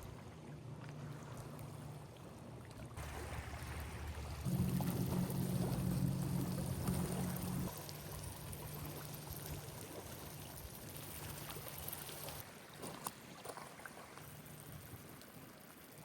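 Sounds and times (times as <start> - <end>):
motorboat engine humming: 0.0 - 12.4.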